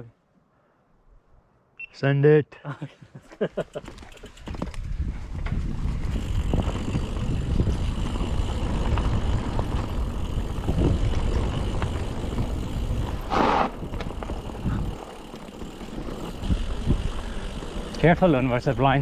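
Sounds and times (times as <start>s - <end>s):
bike rattling and clicking: 3.6s - 19.0s
wind rushing over microphone: 4.5s - 15.1s, 16.0s - 18.0s.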